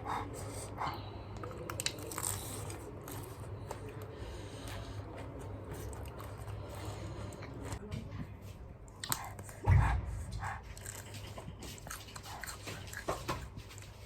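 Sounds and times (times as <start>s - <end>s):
chewing and crunching cabbage: 1.0s - 7.9s, 10.7s - 14.0s.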